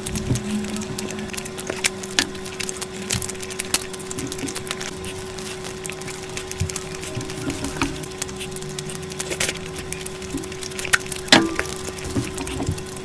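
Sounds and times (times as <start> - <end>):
crunching and chewing crisp food: 0.0 - 13.0
steady hum: 0.0 - 13.0.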